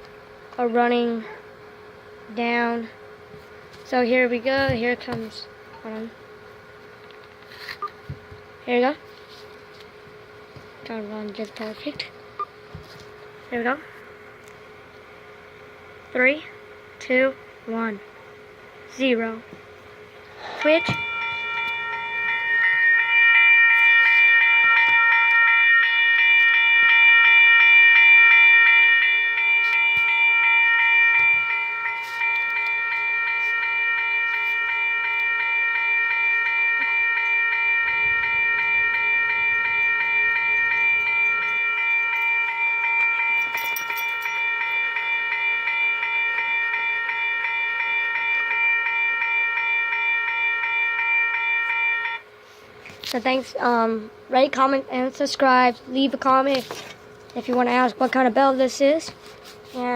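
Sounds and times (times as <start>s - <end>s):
electronic crossing bell dinging: 20.4s - 52.4s.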